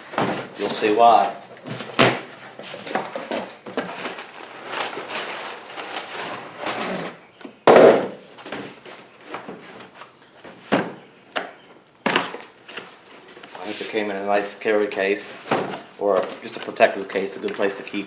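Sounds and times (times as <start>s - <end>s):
cardboard packaging rustling: 0.0s - 7.4s, 12.1s - 18.0s.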